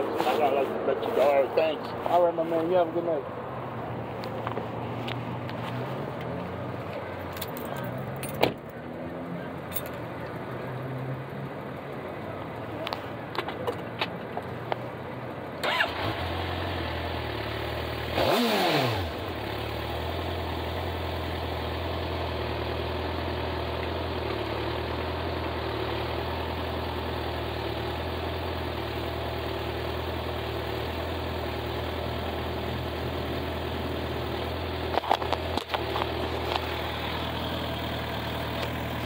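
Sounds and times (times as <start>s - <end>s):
car engine idling: 19.1s - 39.0s.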